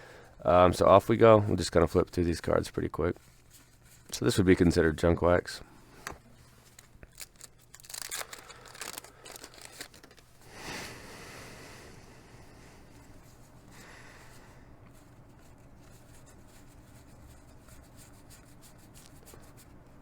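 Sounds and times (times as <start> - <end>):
wax paper wrapper crinkling and tearing: 6.5 - 10.4.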